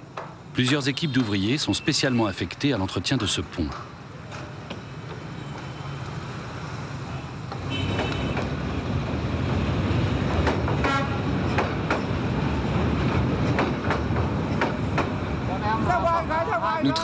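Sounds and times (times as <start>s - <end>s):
train rumbling on bridge: 7.5s - 16.9s
wheels clacking over rails: 9.4s - 15.4s.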